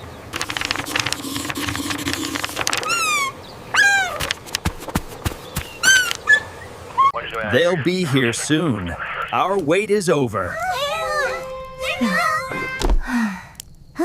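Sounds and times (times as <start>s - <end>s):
patter of clicks: 0.3s - 3.2s, 4.2s - 4.7s
squeaky animal-like calls: 2.7s - 4.3s, 5.8s - 7.1s.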